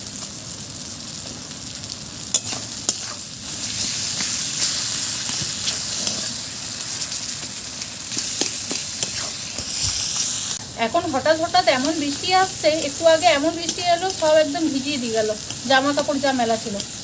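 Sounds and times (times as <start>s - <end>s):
spice paste sizzling in oil: 0.0s - 17.0s
spatula stirring in pan: 2.3s - 10.6s.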